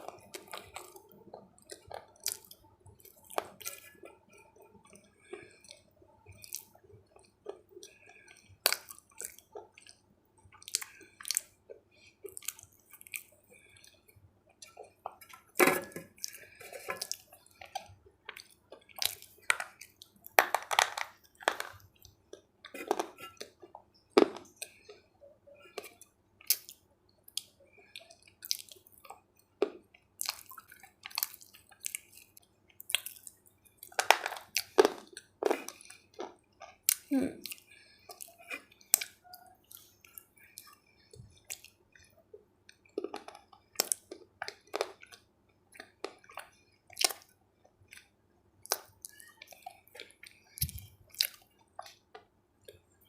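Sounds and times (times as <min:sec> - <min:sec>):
crunchy food chewing: 0:00.0 - 0:53.0
wet mouth sounds: 0:47.9 - 0:52.0.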